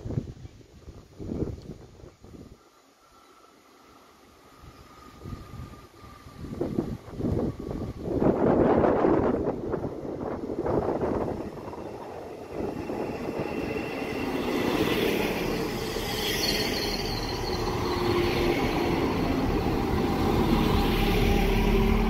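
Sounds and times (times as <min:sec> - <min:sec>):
train wheels running on rails: 0:04.4 - 0:22.0
wheel and brake squealing: 0:12.5 - 0:21.7.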